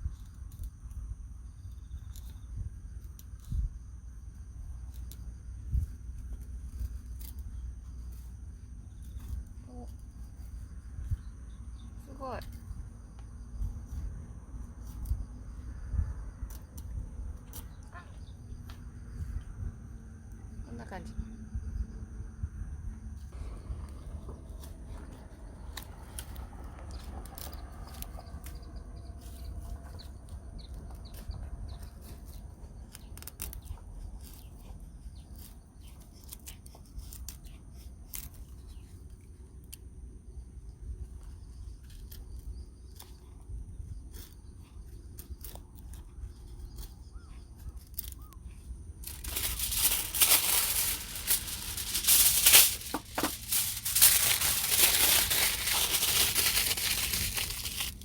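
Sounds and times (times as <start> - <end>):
wind rumbling on microphone: 0.0 - 7.8, 8.9 - 20.6
loud crinkling and crumpling: 49.0 - 58.0.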